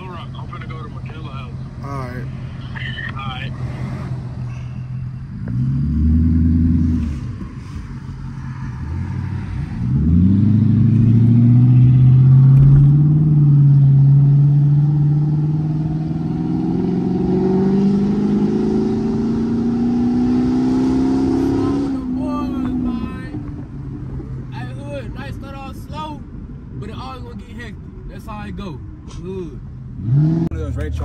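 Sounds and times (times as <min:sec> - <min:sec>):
car engine revving and accelerating: 0:03.3 - 0:04.4, 0:05.3 - 0:23.6, 0:29.9 - 0:31.0.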